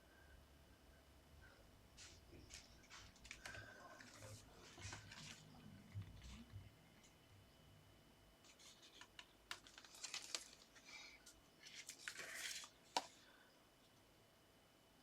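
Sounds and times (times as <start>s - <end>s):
paper card rustling and scraping: 2.0s - 6.5s, 8.4s - 13.2s.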